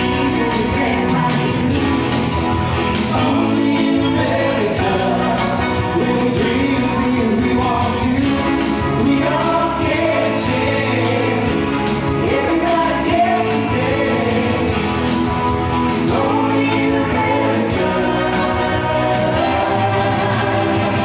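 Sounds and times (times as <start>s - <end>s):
instrumental backing: 0.0s - 21.0s
choir singing: 3.1s - 6.9s, 9.0s - 15.2s, 16.0s - 21.0s.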